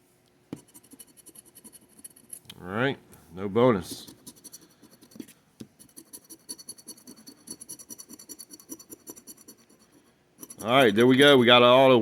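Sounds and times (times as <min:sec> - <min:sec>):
scratching lottery ticket: 0:00.6 - 0:02.4, 0:03.8 - 0:11.0.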